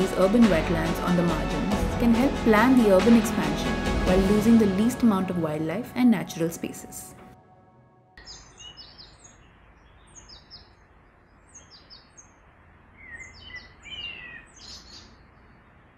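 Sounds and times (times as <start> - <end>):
background music: 0.0 - 8.2
small birds chirping: 8.2 - 15.9
steady outdoor hiss: 8.2 - 15.9.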